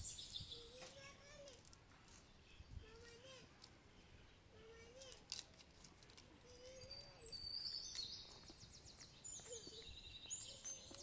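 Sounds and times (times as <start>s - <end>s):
birdsong chirps and trills: 0.0s - 1.4s, 2.1s - 5.1s, 6.4s - 11.0s.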